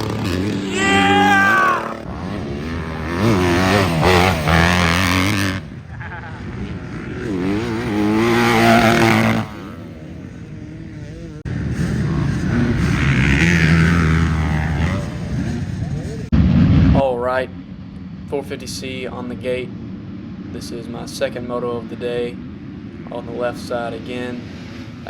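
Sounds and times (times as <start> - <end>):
dirt bike engines revving: 0.0 - 16.3, 17.2 - 25.0.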